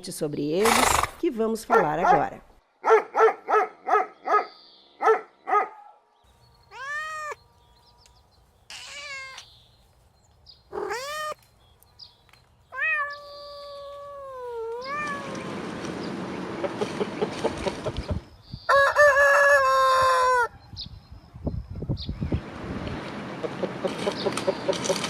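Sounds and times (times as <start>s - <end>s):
dog barking: 1.7s - 6.0s
cat meowing: 6.7s - 7.4s, 8.7s - 9.5s, 10.7s - 11.4s, 12.7s - 15.4s.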